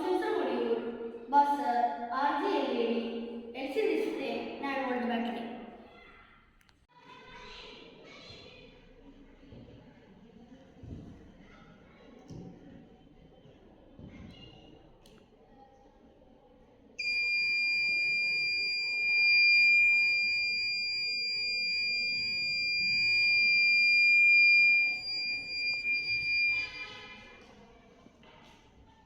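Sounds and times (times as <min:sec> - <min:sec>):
high-pitched electronic buzzer tone: 0:17.0 - 0:27.1.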